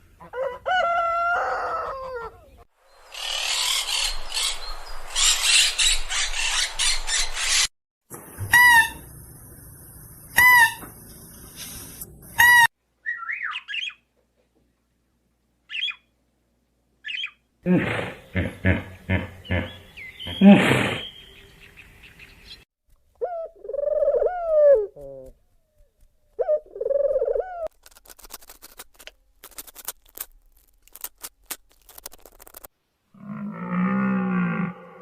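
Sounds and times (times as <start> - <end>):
rooster crowing: 0.2 - 2.4
rough crackling noise: 27.6 - 32.8.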